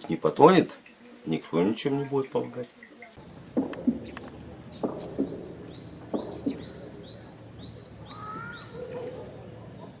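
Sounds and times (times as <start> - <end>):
small bird chirping rapidly: 3.9 - 9.2.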